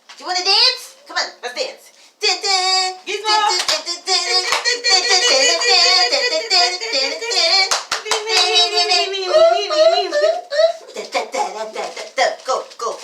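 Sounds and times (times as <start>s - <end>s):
song with singing: 2.0s - 13.0s
sharp hand claps: 3.5s - 3.8s, 4.4s - 5.8s, 7.6s - 8.9s.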